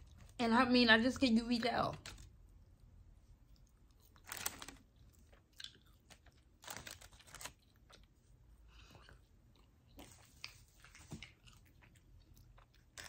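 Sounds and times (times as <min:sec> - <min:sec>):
crunchy biting and chewing: 0:04.1 - 0:08.1.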